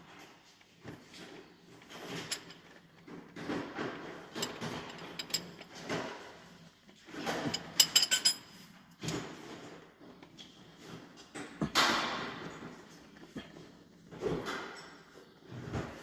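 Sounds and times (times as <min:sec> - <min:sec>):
hand tools clicking and scraping metal: 0:03.4 - 0:06.0.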